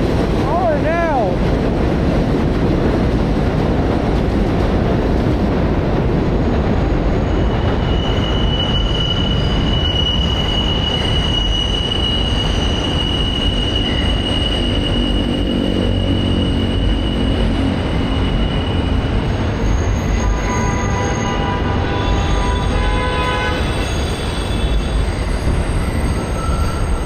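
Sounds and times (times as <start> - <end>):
subway train rumbling on rails: 0.0 - 27.0
high wheel squeal: 6.8 - 27.0.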